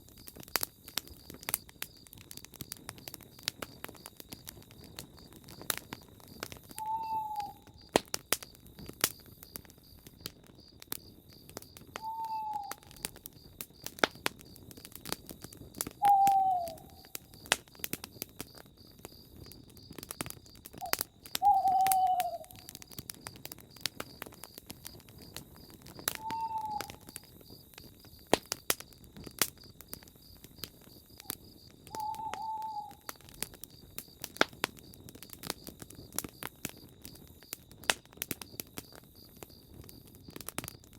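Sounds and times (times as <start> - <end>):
campfire crackling and popping: 0.0 - 40.9
owl hooting: 6.8 - 7.8, 12.0 - 13.0, 16.0 - 17.1, 20.8 - 22.8, 26.2 - 27.1, 31.9 - 33.1.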